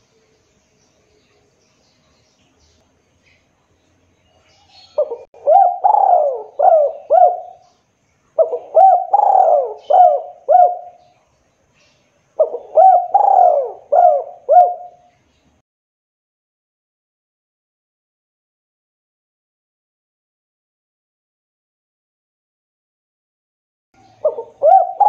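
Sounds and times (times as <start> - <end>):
dove cooing: 4.6 - 7.6, 8.4 - 11.0, 12.4 - 15.1, 24.0 - 25.0.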